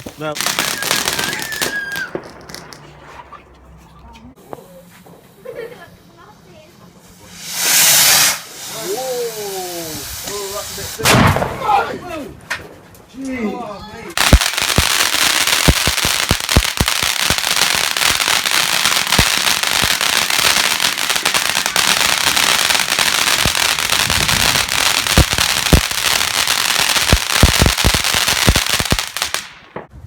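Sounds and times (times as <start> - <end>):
firework hissing and crackling: 0.0 - 3.3, 7.0 - 11.0, 14.2 - 29.7.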